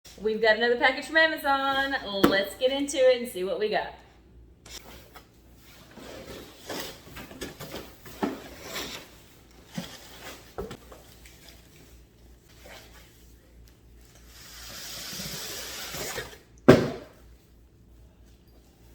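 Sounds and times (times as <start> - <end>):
packaging rustling and scraping: 4.7 - 11.7.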